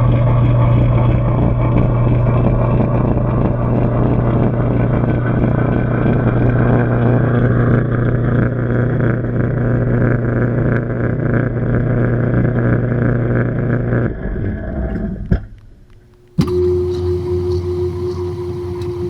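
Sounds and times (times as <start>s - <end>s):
washing machine motor hum: 0.0s - 13.6s, 16.4s - 19.0s
sharp click: 16.4s - 17.7s.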